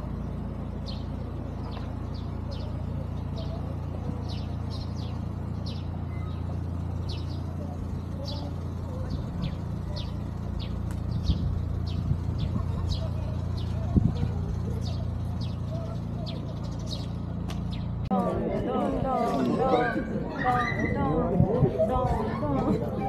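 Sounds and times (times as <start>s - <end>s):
small birds chirping: 0.0s - 18.2s
steady low rumble: 0.0s - 20.3s.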